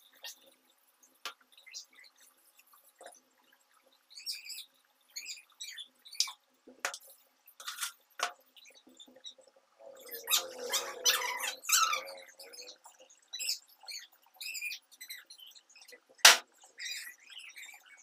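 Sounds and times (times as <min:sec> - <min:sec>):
birds chirping: 0:08.5 - 0:16.0, 0:16.6 - 0:18.0.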